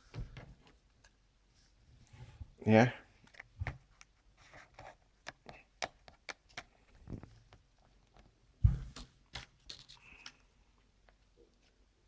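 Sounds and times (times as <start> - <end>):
thump: 8.6 - 9.0.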